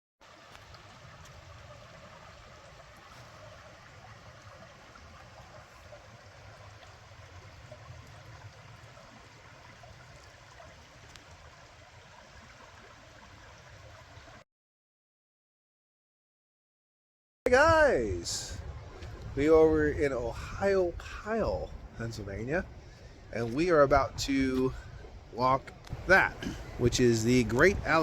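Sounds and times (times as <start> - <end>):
flowing water rushing: 0.2 - 14.4, 17.5 - 28.0.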